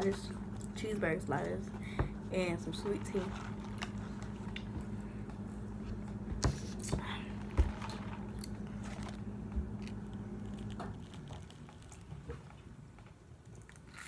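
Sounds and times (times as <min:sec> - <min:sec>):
low hum: 0:00.0 - 0:13.8
biting and chewing food: 0:03.0 - 0:14.0.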